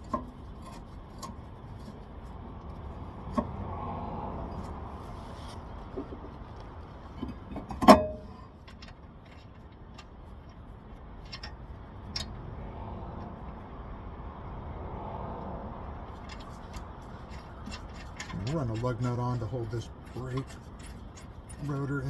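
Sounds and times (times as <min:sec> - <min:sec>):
metal parts tapping and clicking: 0:16.1 - 0:22.0.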